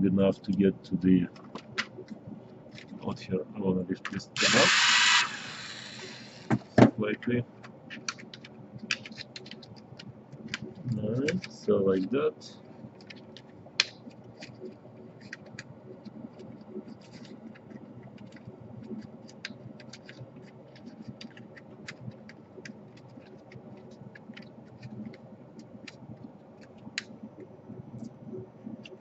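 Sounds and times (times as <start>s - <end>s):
faint steady hum: 0.0s - 29.0s
hands clicking and scratching: 1.3s - 3.1s, 7.6s - 12.1s, 13.0s - 28.2s.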